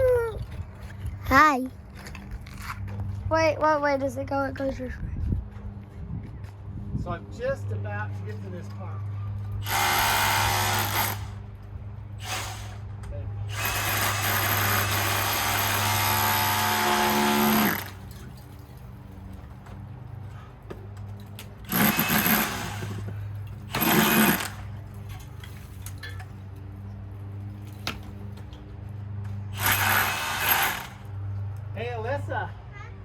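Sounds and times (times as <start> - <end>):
power tool running: 9.6 - 11.4, 12.2 - 12.9, 13.5 - 18.0, 21.7 - 24.7, 29.5 - 31.1.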